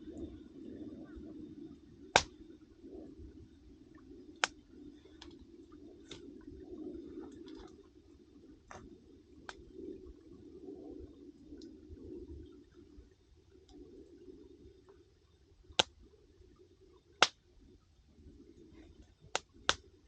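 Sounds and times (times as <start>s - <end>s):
low steady rumble: 0.0s - 20.0s
campfire crackling and popping: 2.0s - 2.6s, 4.3s - 6.6s, 8.7s - 9.8s, 15.6s - 16.0s, 17.2s - 17.5s, 19.2s - 20.0s.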